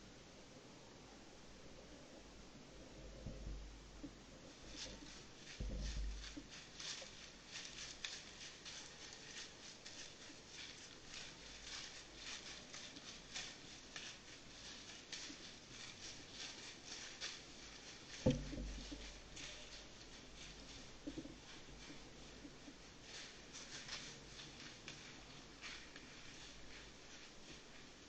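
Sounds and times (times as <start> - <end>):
light ticking and pattering: 3.2 - 28.0
dull thump: 18.2 - 19.0.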